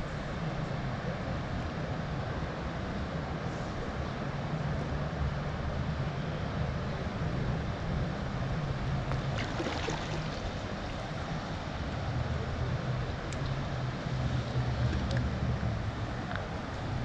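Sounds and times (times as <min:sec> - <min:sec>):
river water rushing: 0:09.2 - 0:11.8.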